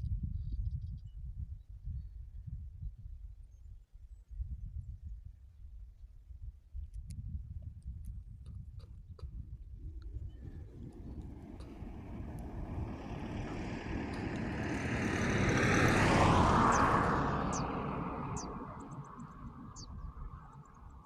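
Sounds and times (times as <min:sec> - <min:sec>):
vehicle passing by: 0:10.3 - 0:21.0.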